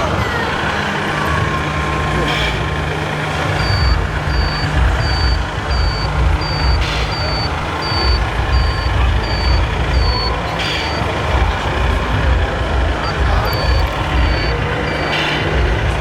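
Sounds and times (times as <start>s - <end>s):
loud low rumble: 1.4s - 16.0s
high reversing beeper: 3.5s - 16.0s.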